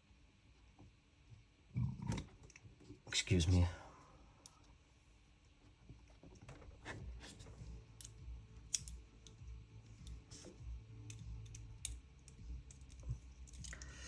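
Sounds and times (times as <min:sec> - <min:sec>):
clicks of small parts and screwdriver: 0:07.2 - 0:13.9.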